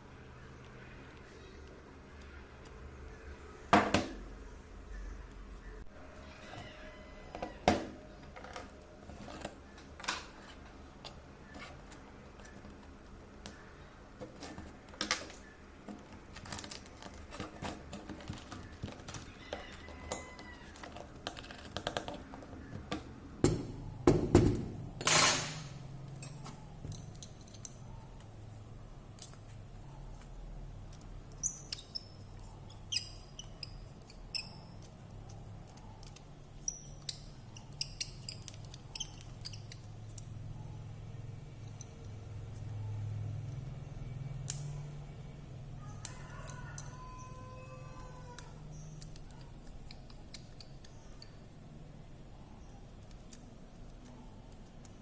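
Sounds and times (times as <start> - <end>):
small high squeaks: 5.7 - 7.6, 31.3 - 40.7
small tools clicking and tapping: 8.3 - 23.6, 24.4 - 28.4, 30.2 - 40.4, 41.6 - 42.7, 46.0 - 47.0, 47.9 - 51.6.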